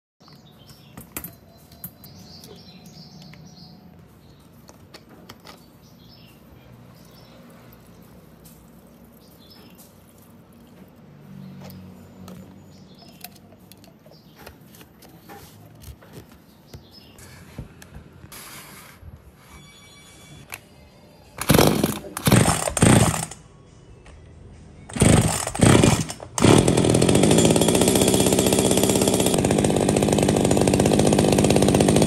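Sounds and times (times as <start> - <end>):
small high squeaks: 18.3 - 20.5.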